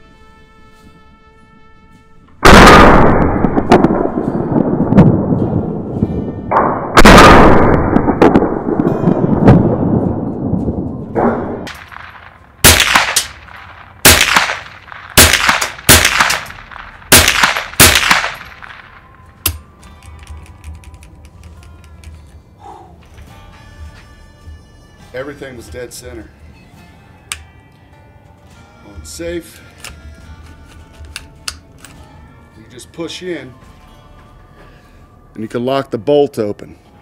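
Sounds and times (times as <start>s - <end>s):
rifle shots: 2.4s - 4.4s, 6.5s - 9.3s, 11.2s - 19.6s
loud gunshots with echoes: 2.4s - 4.9s, 6.5s - 9.9s, 11.1s - 19.0s.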